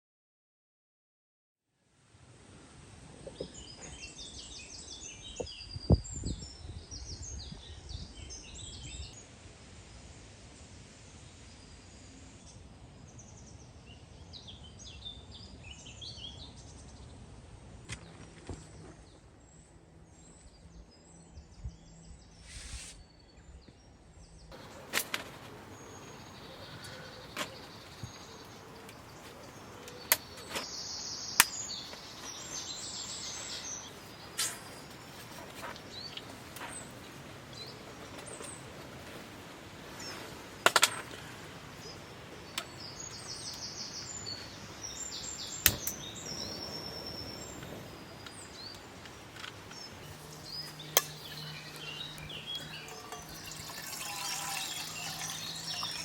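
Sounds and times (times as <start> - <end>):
small birds chirping: 18.0 - 56.0.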